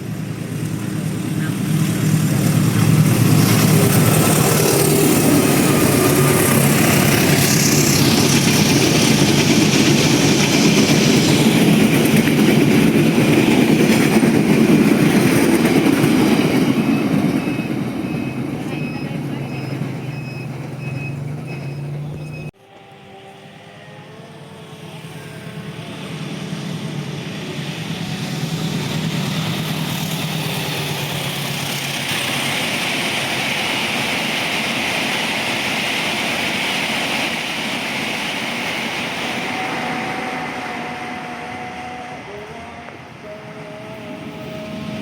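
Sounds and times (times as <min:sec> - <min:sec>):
train wheels rolling on rails: 0:00.0 - 0:23.0, 0:23.8 - 0:45.0
locomotive engine hum: 0:00.0 - 0:45.0.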